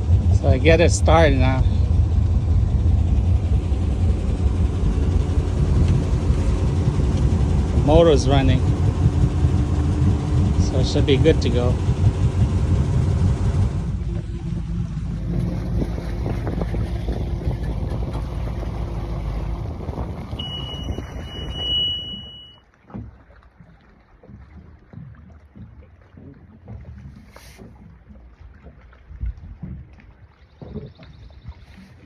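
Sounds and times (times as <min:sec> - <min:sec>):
boat engine running: 0:00.0 - 0:32.0
water splashing: 0:00.0 - 0:32.0
wind: 0:00.0 - 0:32.0
high steady beep: 0:20.4 - 0:22.6.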